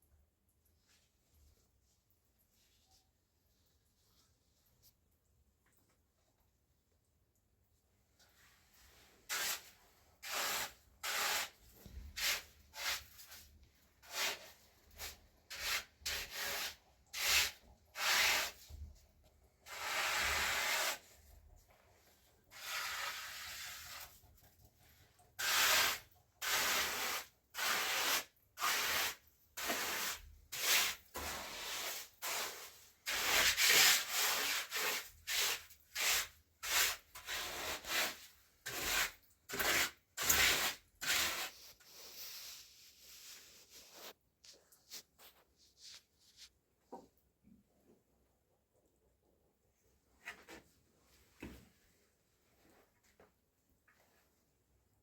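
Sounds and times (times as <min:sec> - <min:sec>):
hand scraping on hard surface: 0:25.4 - 0:46.6.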